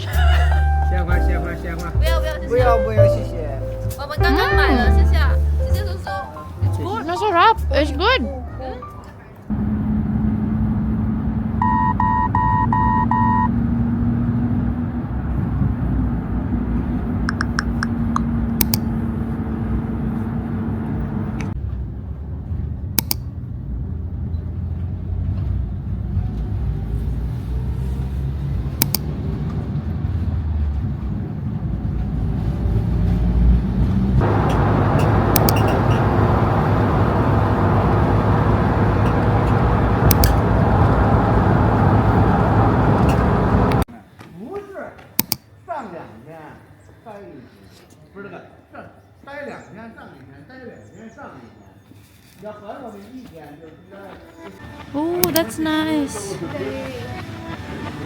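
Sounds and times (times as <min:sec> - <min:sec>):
road vehicle rumbling: 0:00.0 - 0:43.9, 0:53.0 - 0:58.0
electronic beeps: 0:11.6 - 0:13.6, 0:35.0 - 0:36.2.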